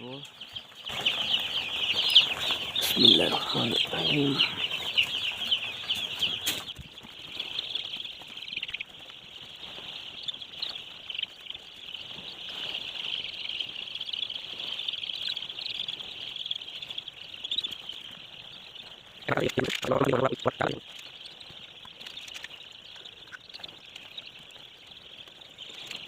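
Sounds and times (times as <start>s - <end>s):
chicks peeping: 0.0s - 26.0s.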